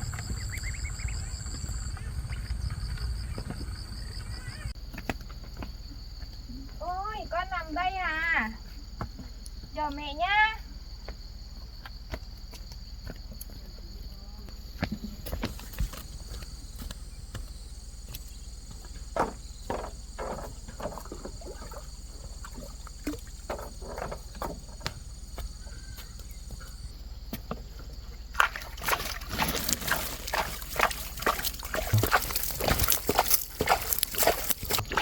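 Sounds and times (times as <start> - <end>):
water sloshing and splashing: 18.1 - 35.0.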